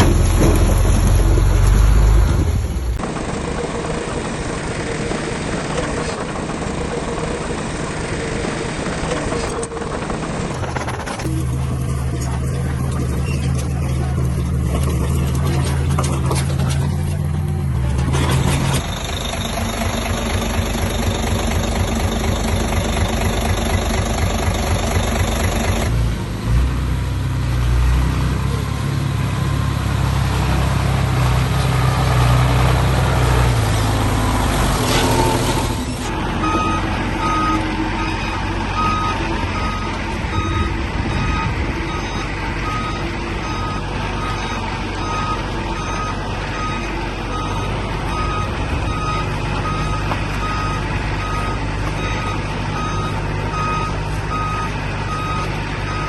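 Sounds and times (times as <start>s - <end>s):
diesel engine rumble: 0.0s - 56.0s
reversing alarm beeping: 18.7s - 25.9s, 36.4s - 56.0s.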